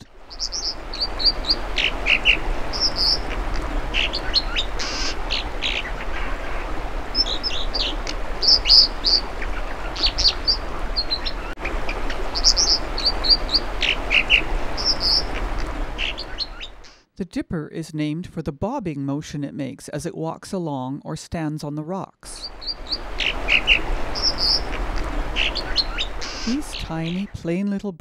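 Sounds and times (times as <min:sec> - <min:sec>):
bird singing high notes: 0:00.0 - 0:16.8, 0:22.4 - 0:27.4.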